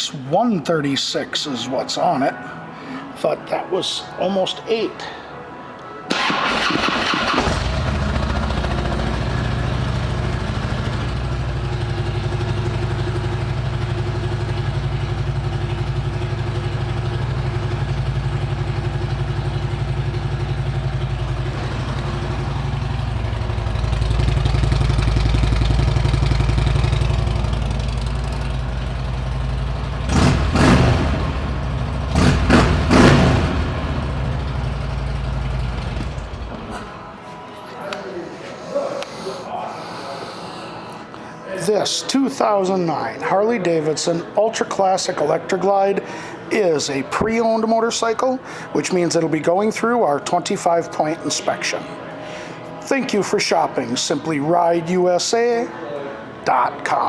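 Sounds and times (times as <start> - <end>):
motorcycle engine revving: 6.1 - 36.9
motorcycle engine starting and idling: 6.1 - 37.1.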